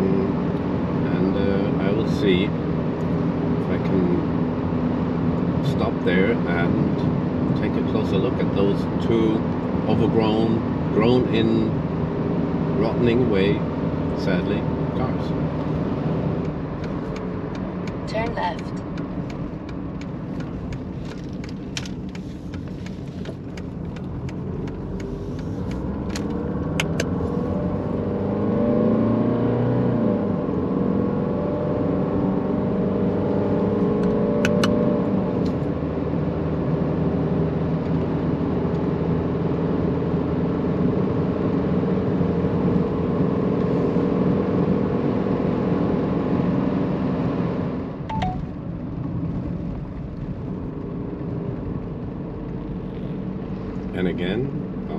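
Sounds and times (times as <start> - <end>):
diesel car engine: 0.0 - 54.9
road noise: 0.0 - 54.9
sharp clicks: 25.7 - 27.2.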